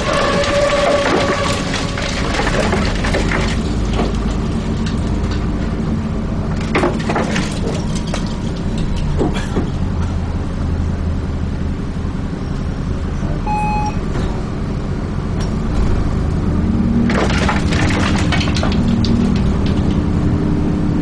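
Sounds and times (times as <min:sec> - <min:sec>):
bus diesel engine droning: 0:00.0 - 0:06.8, 0:07.5 - 0:17.1, 0:18.7 - 0:21.0
bus body rattling: 0:00.0 - 0:13.4, 0:14.0 - 0:21.0
short electronic beep: 0:13.4 - 0:14.0.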